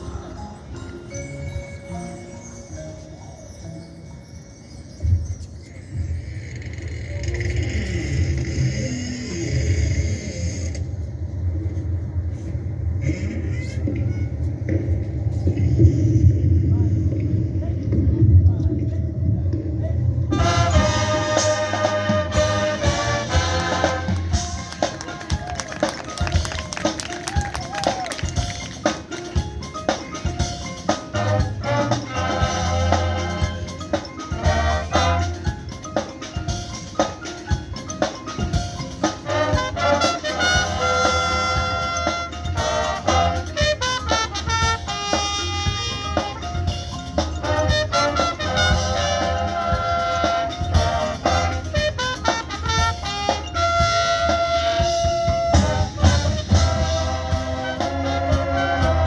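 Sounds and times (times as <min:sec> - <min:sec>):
mallet percussion: 0:00.0 - 0:08.5, 0:20.3 - 0:59.0
drumline: 0:19.5 - 0:59.0
brass playing: 0:20.3 - 0:26.8, 0:31.0 - 0:35.7, 0:39.1 - 0:59.0.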